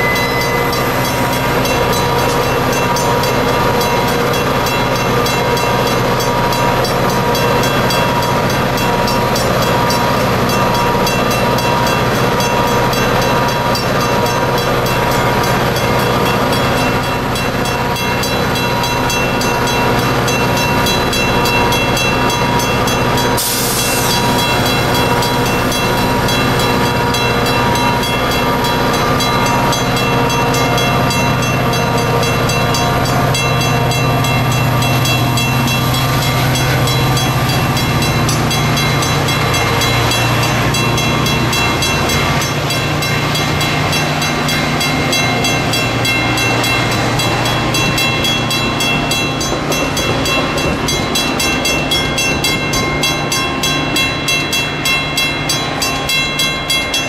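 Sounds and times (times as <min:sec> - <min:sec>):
high ringing tones: 0:00.0 - 0:05.4
train rumbling past: 0:00.0 - 0:57.0.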